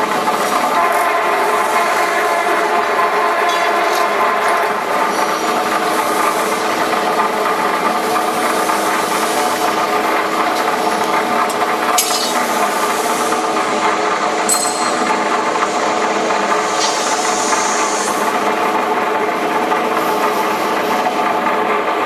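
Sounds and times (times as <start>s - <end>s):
sharp machine clicks: 11.4s - 12.5s.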